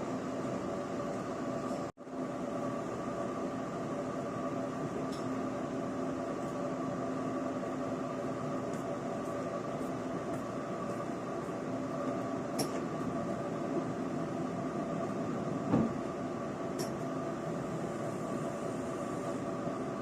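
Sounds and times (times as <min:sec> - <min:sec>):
train interior hum: 0:00.0 - 0:20.0.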